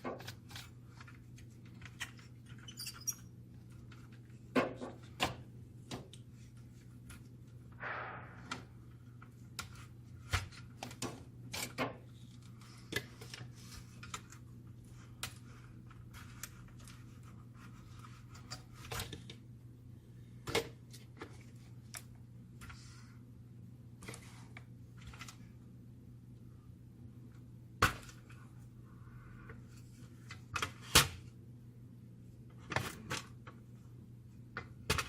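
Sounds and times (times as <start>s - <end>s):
steady low hum: 5.4s - 10.3s.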